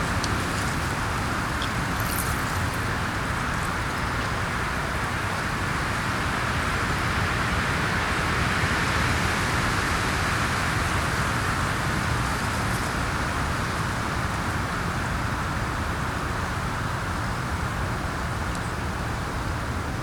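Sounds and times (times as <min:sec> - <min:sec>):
wind blowing: 0:00.0 - 0:06.6.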